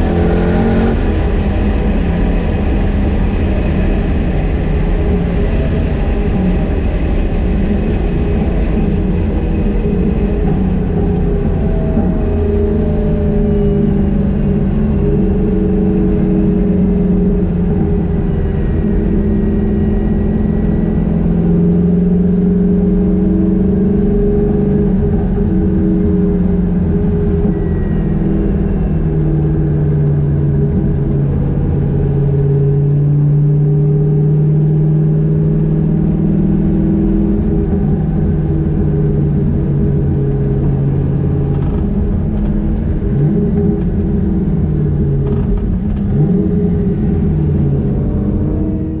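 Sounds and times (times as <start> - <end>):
car engine cruising: 0.0 - 49.0.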